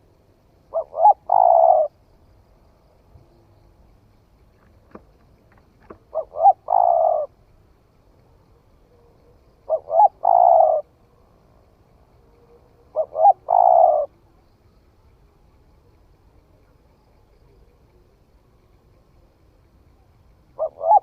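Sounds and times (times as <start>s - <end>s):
dove cooing: 0.7s - 2.0s, 5.0s - 7.4s, 8.7s - 11.0s, 12.3s - 14.2s, 20.5s - 21.0s.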